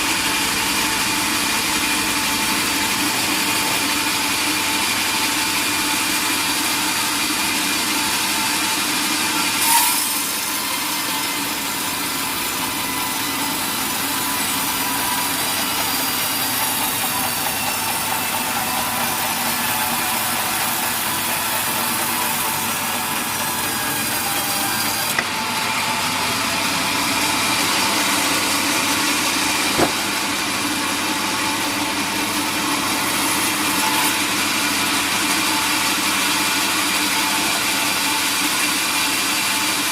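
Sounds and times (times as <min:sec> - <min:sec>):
sawmill saw cutting log: 0:00.0 - 0:39.9
sharp knock: 0:29.7 - 0:30.1.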